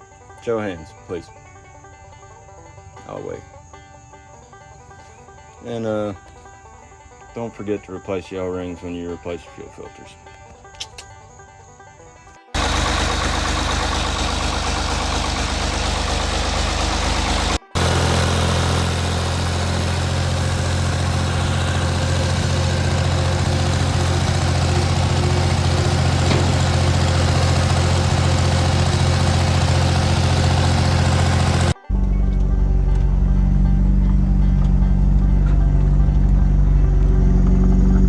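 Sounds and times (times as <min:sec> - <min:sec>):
tractor diesel engine running: 0:12.6 - 0:38.0.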